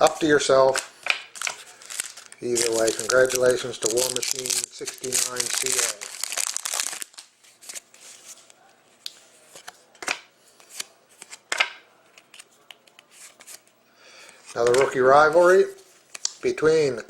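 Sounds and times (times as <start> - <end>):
foil wrapper crinkling: 0.7 - 8.5.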